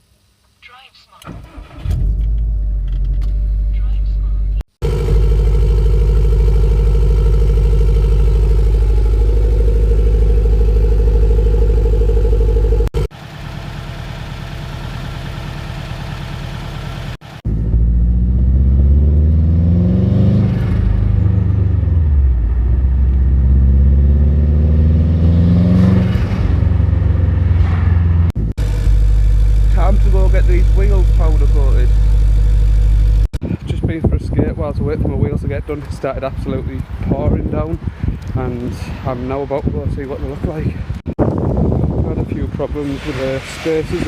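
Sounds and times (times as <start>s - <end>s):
car engine revving: 1.5s - 13.1s, 17.5s - 33.3s.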